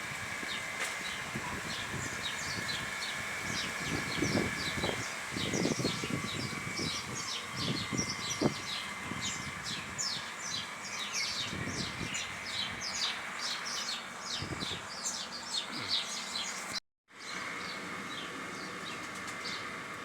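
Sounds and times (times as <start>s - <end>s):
small birds chirping: 0.4s - 19.8s.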